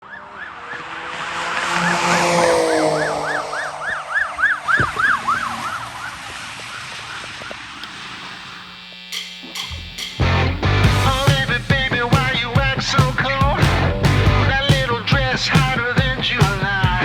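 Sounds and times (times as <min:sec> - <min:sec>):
police siren yelp passing: 0:00.0 - 0:07.6.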